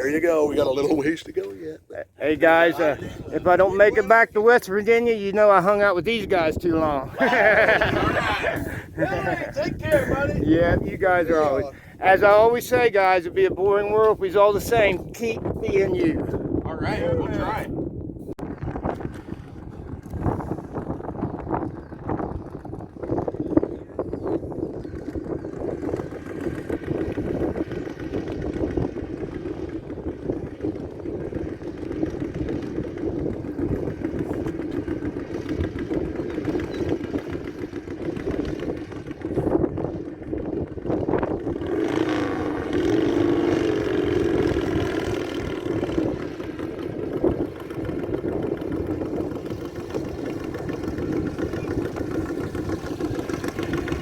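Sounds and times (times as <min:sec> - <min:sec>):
motorcycle engine idling: 0:18.7 - 0:54.0.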